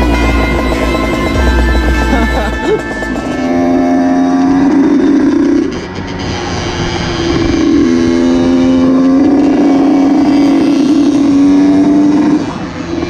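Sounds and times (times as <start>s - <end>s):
motorcycle engine at high revs: 0.0s - 13.0s.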